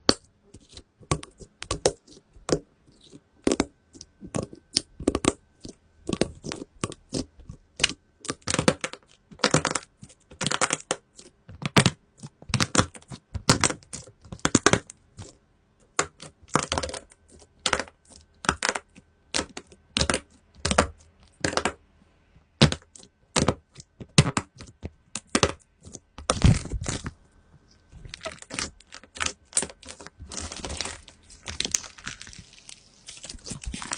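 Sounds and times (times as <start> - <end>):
slime popping and crackling: 6.0 - 15.3, 16.0 - 21.8, 22.6 - 27.2, 27.9 - 33.9.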